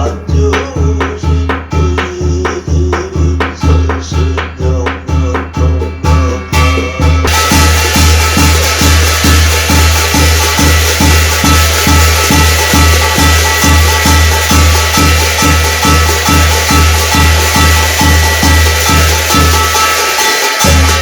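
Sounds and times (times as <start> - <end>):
drum beating steadily: 0.0 - 21.0
bright ringing held tones: 3.6 - 21.0.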